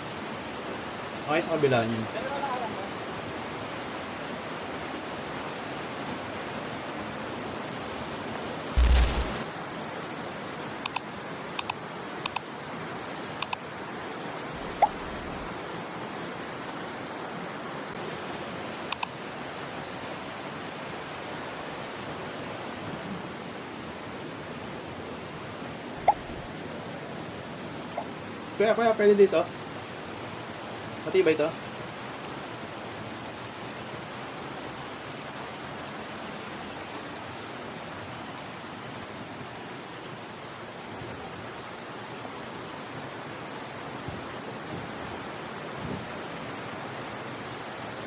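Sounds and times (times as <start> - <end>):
sharp clicks: 8.8 - 9.4, 11.6 - 12.4.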